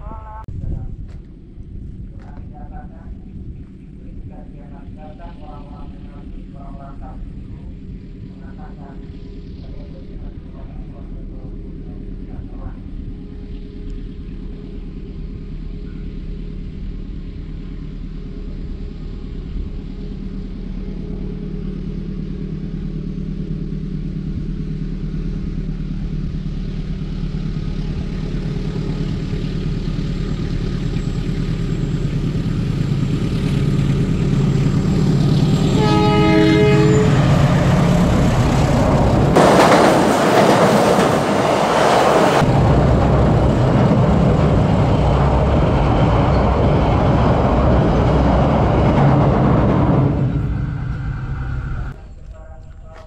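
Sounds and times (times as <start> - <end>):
diesel train engine hum: 0.0 - 53.0
locomotive rushing past: 1.3 - 53.0
train horn blast: 35.5 - 38.0.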